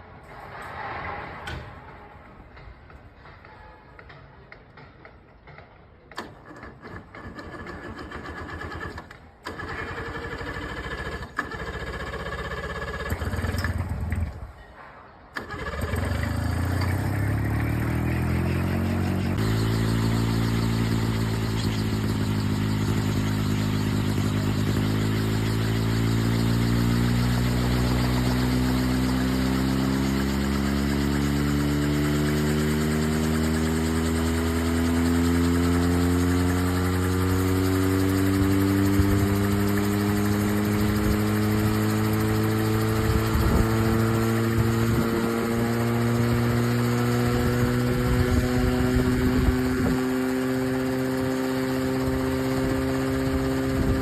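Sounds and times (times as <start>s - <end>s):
helicopter motor and rotors spinning: 15.4s - 54.0s.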